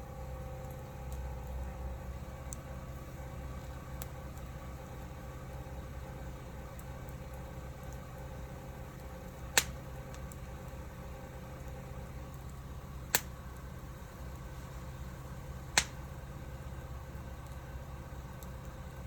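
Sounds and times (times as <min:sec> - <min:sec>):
burning wood popping: 0:00.0 - 0:19.0.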